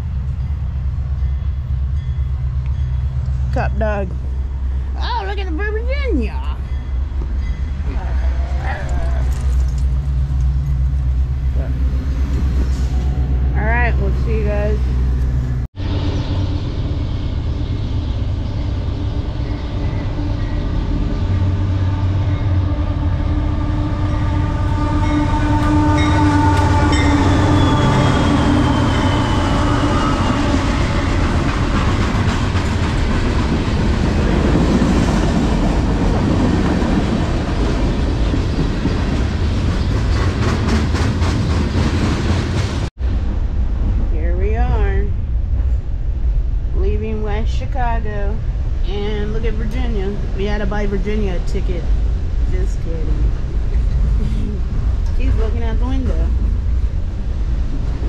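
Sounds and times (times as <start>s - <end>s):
train rumbling on rails: 0.0s - 58.0s
squealing wheel tones: 25.0s - 31.0s.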